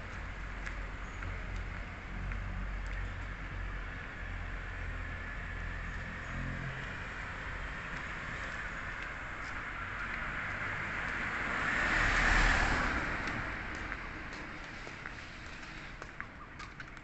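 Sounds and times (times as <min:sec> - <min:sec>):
vehicle passing by: 0:04.4 - 0:08.8, 0:09.5 - 0:16.1.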